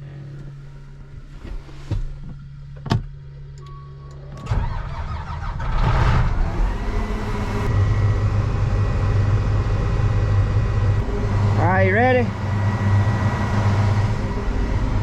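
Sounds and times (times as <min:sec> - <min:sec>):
low steady hum: 0:00.0 - 0:15.0
machine whine: 0:04.2 - 0:15.0
harvester machinery running: 0:04.4 - 0:15.0.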